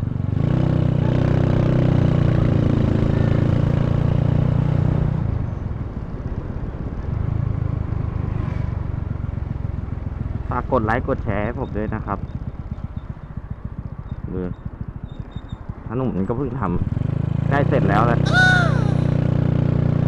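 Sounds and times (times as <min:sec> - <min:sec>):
motorcycle engine running: 0:12.0 - 0:16.1.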